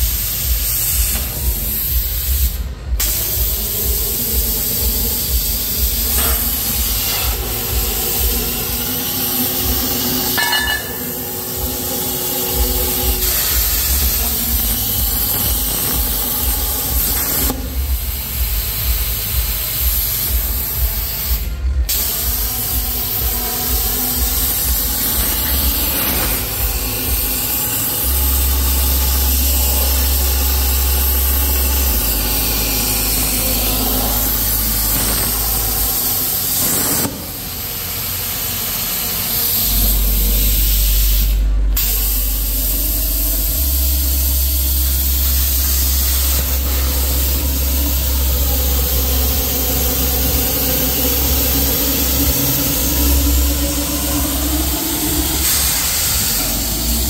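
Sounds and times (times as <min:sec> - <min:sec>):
plasma cutter hissing: 0:00.0 - 0:57.0
low hum: 0:01.1 - 0:19.7, 0:20.3 - 0:57.0.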